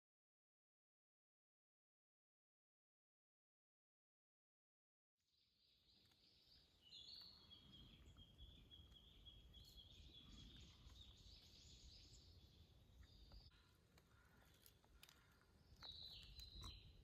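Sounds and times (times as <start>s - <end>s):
faint birds singing: 5.2s - 17.0s.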